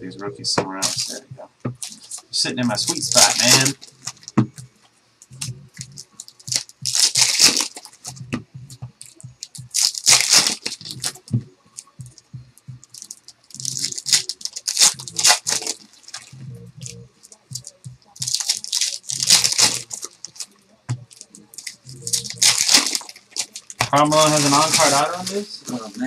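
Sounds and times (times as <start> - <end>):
cards being handled: 0.6 - 4.6, 9.0 - 12.0, 12.9 - 16.3, 17.4 - 26.0
foil wrappers tearing and crinkling: 0.8 - 1.2, 1.8 - 4.3, 6.2 - 8.1, 9.0 - 11.2, 12.9 - 16.4, 17.4 - 26.0.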